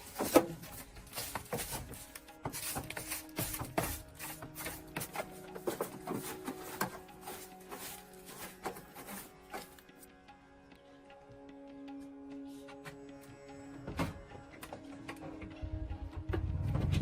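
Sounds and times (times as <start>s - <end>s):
clicks knocks and scraping: 0.0s - 9.9s
faint music: 0.0s - 17.0s.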